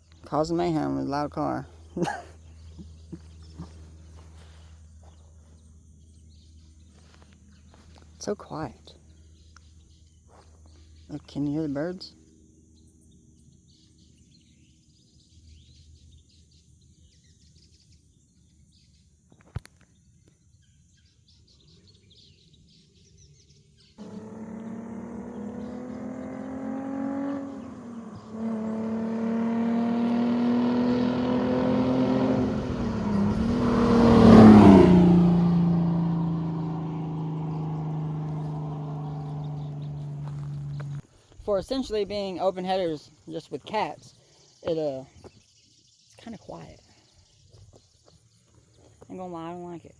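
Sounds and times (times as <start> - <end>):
faint birdsong: 0.0 - 49.9
car accelerating through gears: 24.0 - 41.0.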